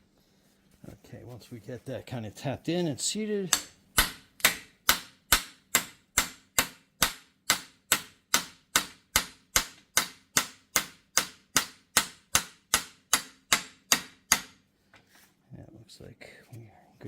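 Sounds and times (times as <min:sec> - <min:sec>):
hammer tapping metal: 0:03.5 - 0:14.6.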